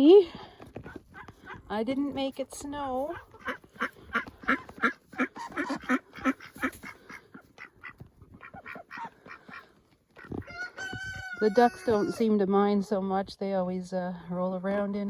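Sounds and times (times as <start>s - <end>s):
ducks quacking: 3.1s - 12.3s.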